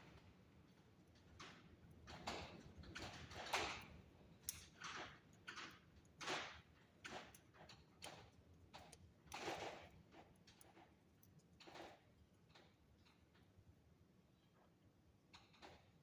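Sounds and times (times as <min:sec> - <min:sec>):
wire clicking and scraping: 0:07.0 - 0:12.6.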